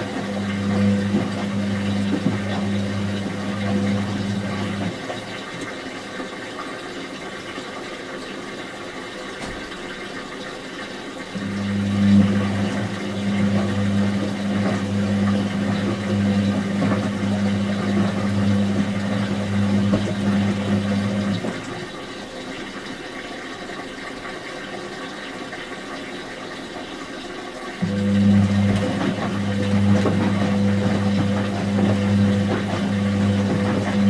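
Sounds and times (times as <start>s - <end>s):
water inlet valve humming: 0.0s - 5.7s, 11.3s - 21.9s, 27.8s - 34.0s
water rushing in: 0.0s - 23.2s, 27.8s - 34.0s.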